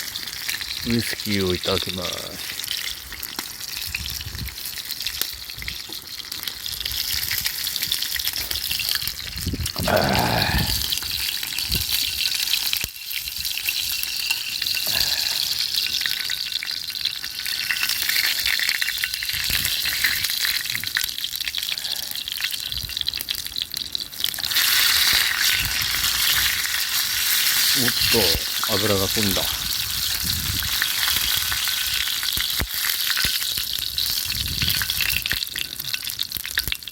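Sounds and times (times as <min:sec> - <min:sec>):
meat sizzling on a grill: 0:00.0 - 0:36.9
fat spitting and crackling: 0:09.6 - 0:11.1, 0:14.8 - 0:15.8, 0:27.4 - 0:30.6.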